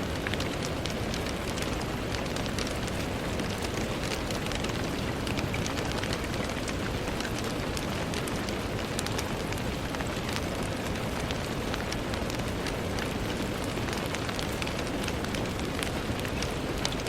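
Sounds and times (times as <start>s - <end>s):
rain on a window pane: 0.0s - 17.0s.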